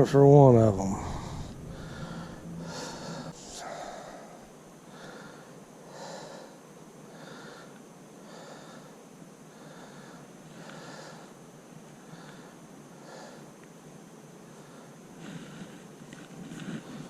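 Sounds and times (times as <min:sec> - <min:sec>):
person breathing: 0:00.6 - 0:11.4, 0:12.0 - 0:13.5, 0:14.5 - 0:15.9.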